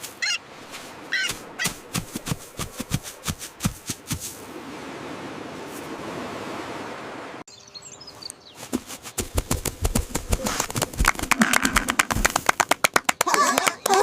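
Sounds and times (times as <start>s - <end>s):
birds chirping: 0.1s - 0.4s, 1.0s - 2.0s, 7.5s - 12.2s, 12.9s - 14.0s
flutter-like taps: 8.7s - 13.3s.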